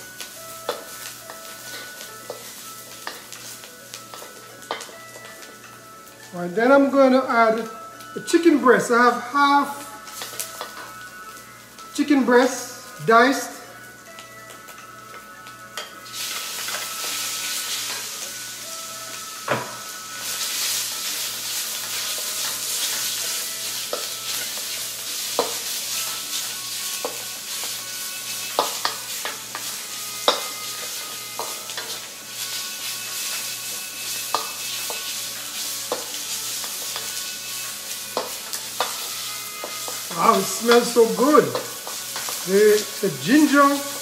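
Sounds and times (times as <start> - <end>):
chicken sizzling in a wok: 0.0 - 44.0
spatula clinking against wok: 4.1 - 5.4, 28.4 - 32.0, 41.5 - 42.4.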